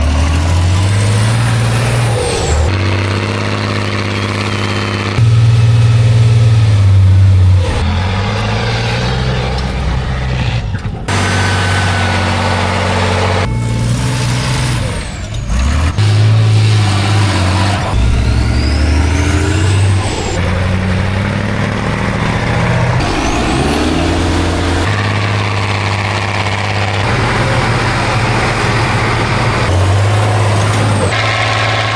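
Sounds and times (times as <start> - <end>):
diesel truck engines revving: 0.0 - 31.9
rising whine: 16.2 - 31.9.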